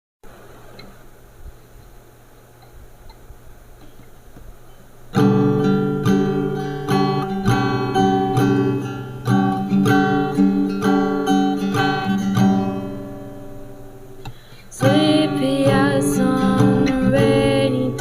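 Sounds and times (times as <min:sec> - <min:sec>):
acoustic guitar strumming chords: 0:03.8 - 0:18.0.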